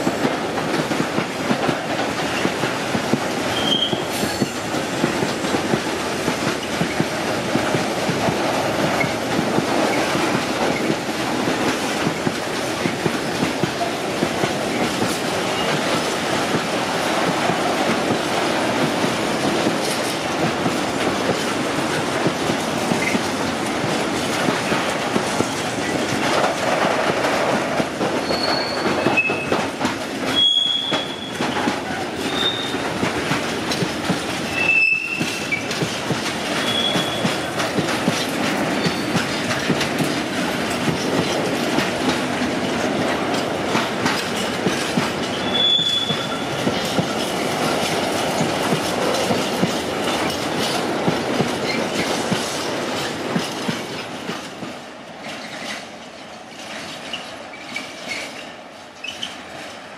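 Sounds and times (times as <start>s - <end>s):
train wheels running on rails: 0.0s - 59.9s
high-pitched wheel squeals: 32.3s - 32.8s, 36.6s - 37.2s, 45.4s - 46.6s.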